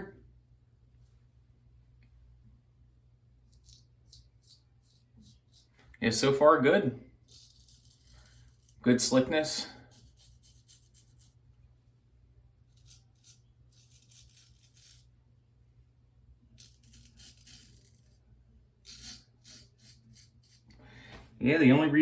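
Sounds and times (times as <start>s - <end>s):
razor scraping stubble: 12.7s - 15.1s, 18.9s - 20.8s.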